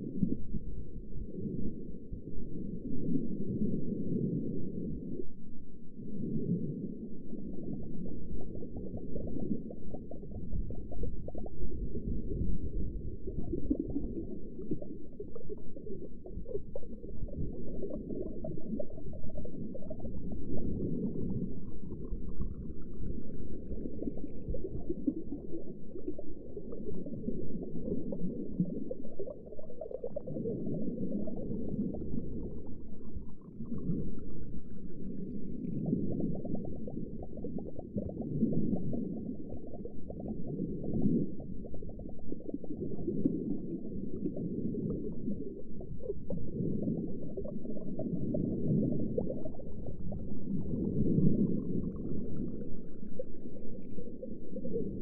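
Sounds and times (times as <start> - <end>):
underwater bubbling and gurgling: 0.0 - 55.0.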